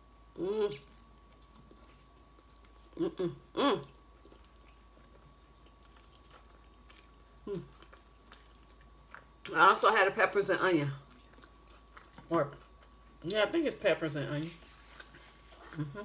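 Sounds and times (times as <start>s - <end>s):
person humming: 0.4s - 0.8s, 3.0s - 3.9s
person chewing food: 0.7s - 9.8s, 10.6s - 16.0s.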